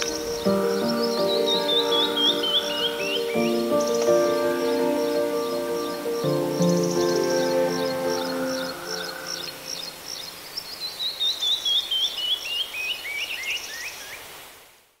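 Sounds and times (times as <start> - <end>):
background music: 0.0 - 10.2
songbird singing: 0.0 - 14.2.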